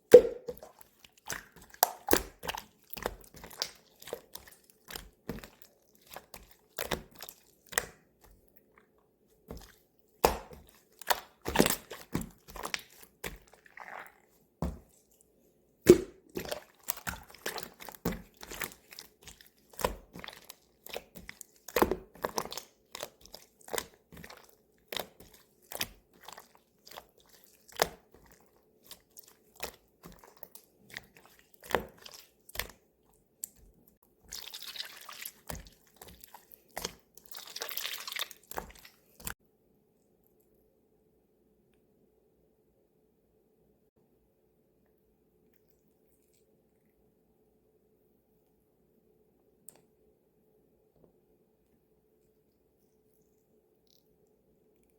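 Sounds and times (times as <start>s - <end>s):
slime squished by hand: 0.0s - 8.4s, 9.4s - 15.2s, 15.9s - 39.4s.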